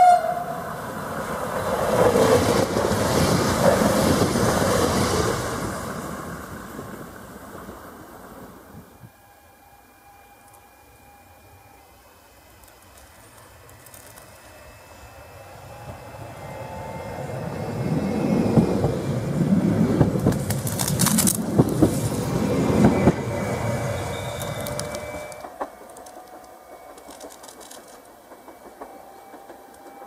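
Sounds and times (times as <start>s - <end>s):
train rumbling past: 0.0s - 30.0s
wheels clacking over rail joints: 12.6s - 14.6s, 18.4s - 30.0s.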